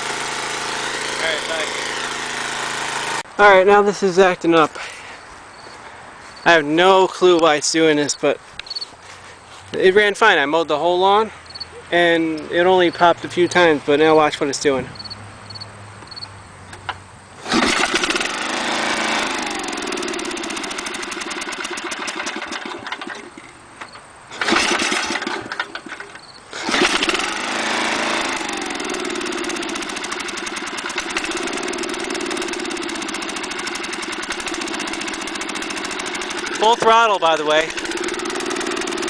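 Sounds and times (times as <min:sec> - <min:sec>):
mower engine sputtering: 0:00.0 - 0:03.3, 0:17.4 - 0:23.6, 0:24.3 - 0:39.0.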